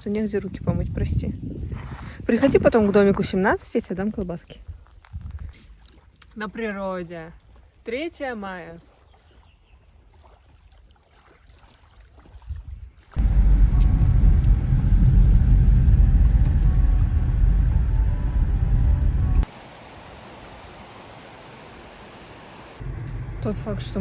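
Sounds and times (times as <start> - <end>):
loud low rumble: 13.2 - 19.5, 22.8 - 24.0.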